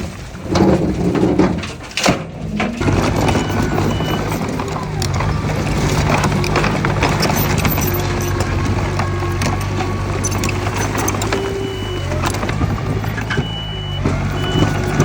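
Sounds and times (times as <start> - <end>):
metallic clanks and rattles: 0.4 - 15.0
diesel engine running: 2.8 - 15.0
high reversing beep: 3.2 - 4.5, 10.2 - 15.0.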